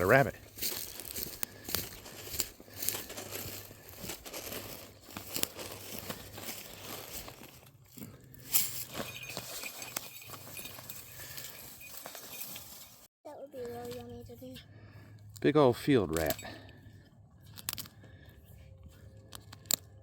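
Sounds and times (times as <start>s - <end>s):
rustling in dry grass: 0.0s - 13.1s.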